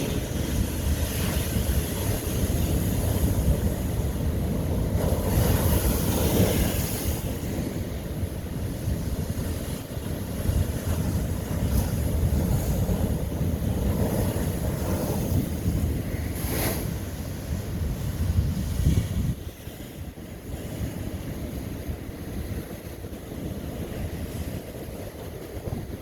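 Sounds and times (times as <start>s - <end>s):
ocean waves crashing on rock: 0.0s - 26.0s
wind rumble on microphone: 0.0s - 26.0s.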